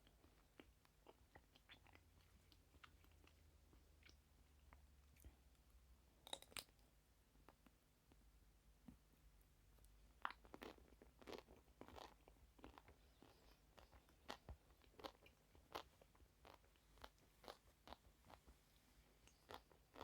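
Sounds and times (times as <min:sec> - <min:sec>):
crunchy food being chewed: 0:00.0 - 0:05.6, 0:09.8 - 0:20.0.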